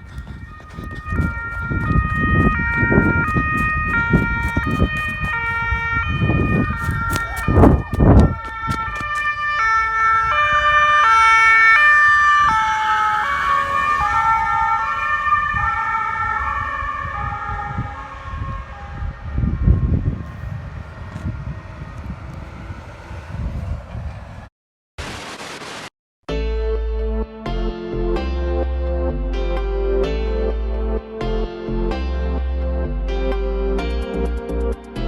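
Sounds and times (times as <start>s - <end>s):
loud low rumbling: 0.0s - 9.0s, 18.4s - 24.5s
two-tone police siren: 0.0s - 24.4s
second siren: 0.0s - 24.5s.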